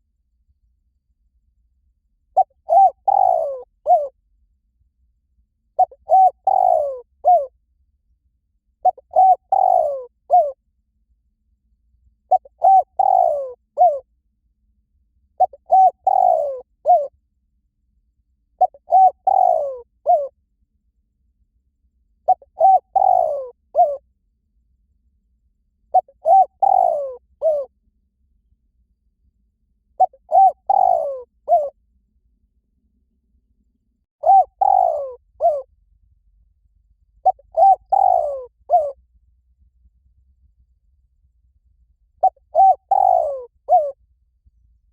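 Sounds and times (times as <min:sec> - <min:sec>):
dove cooing: 0:02.4 - 0:04.2, 0:05.8 - 0:07.5, 0:08.8 - 0:10.6, 0:12.3 - 0:14.1, 0:15.4 - 0:17.1, 0:18.6 - 0:20.3, 0:22.3 - 0:24.0, 0:25.9 - 0:27.7, 0:30.0 - 0:31.7, 0:34.2 - 0:35.7, 0:37.2 - 0:39.0, 0:42.2 - 0:44.0.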